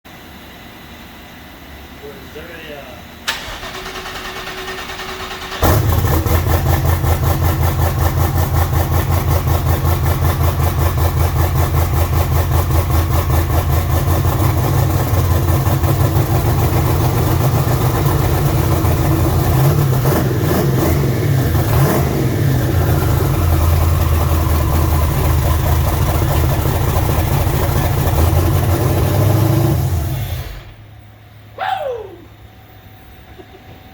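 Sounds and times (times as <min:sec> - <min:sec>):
engine idling loud: 0:03.3 - 0:30.8.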